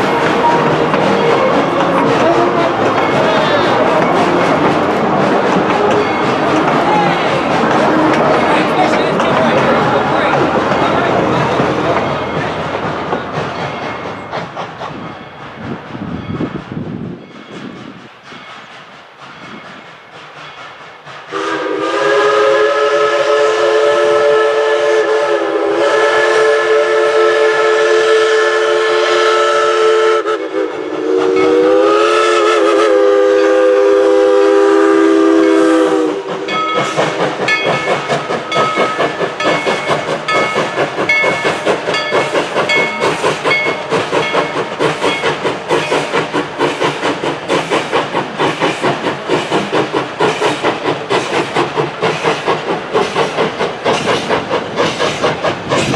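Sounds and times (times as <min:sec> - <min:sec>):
steam whistle blast: 0:21.3 - 0:36.6.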